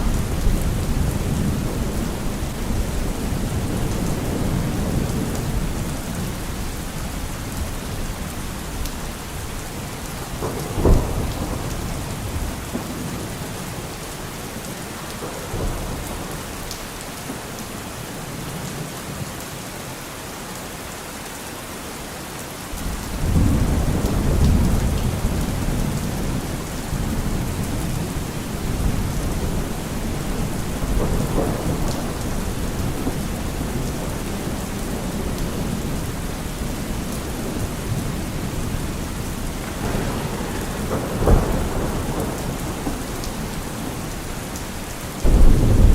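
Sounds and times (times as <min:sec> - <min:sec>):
thunder rolling: 0:10.2 - 0:13.7, 0:22.8 - 0:45.9
heavy rain hissing: 0:21.6 - 0:45.9.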